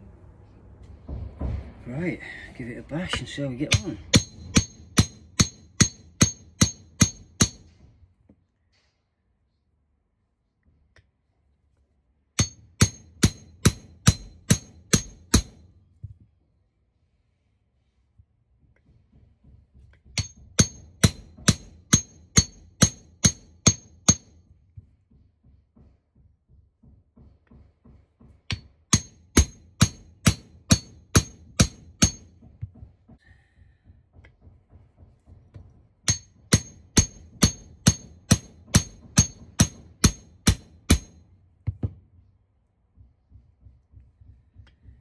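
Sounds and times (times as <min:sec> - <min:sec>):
hammer striking metal: 0:03.1 - 0:07.9, 0:12.4 - 0:15.7, 0:20.2 - 0:24.5, 0:28.5 - 0:32.6, 0:36.0 - 0:41.3.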